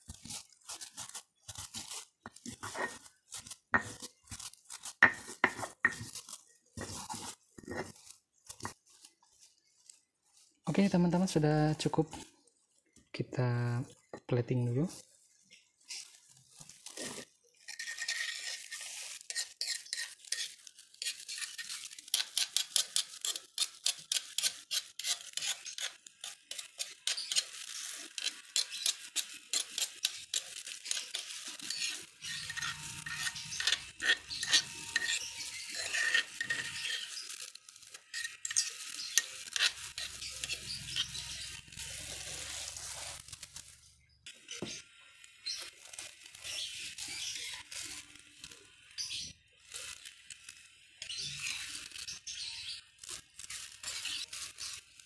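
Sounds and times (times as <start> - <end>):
spoon scraping stone mortar: 0.1 - 8.8, 17.0 - 43.2, 53.8 - 54.8.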